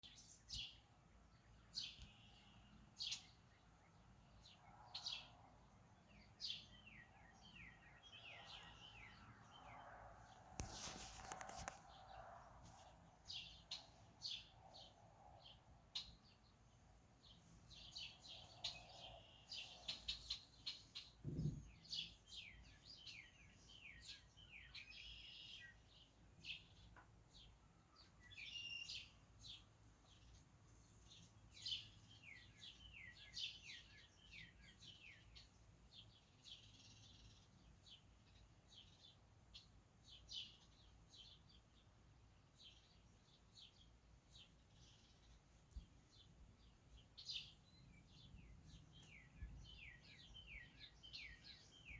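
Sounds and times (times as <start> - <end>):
faint songbirds chirping: 0.0 - 51.9
low thump: 21.2 - 21.8.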